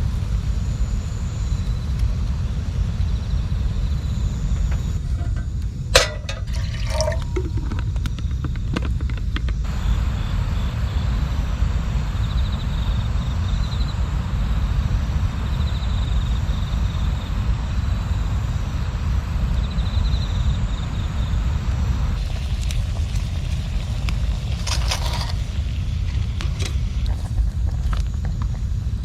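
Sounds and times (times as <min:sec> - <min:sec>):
low rumbling noise: 0:00.0 - 0:15.6.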